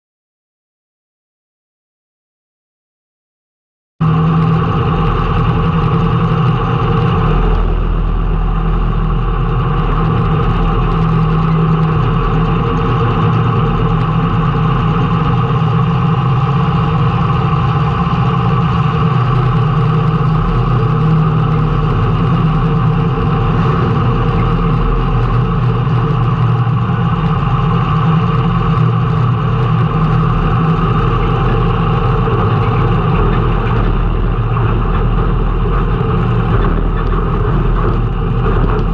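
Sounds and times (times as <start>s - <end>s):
race car engine running: 4.0s - 38.9s.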